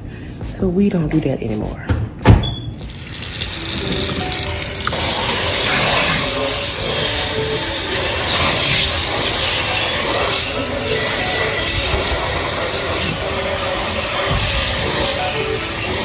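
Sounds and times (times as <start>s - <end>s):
steady rushing hiss: 2.9s - 16.0s
faint musical notes: 3.4s - 16.0s.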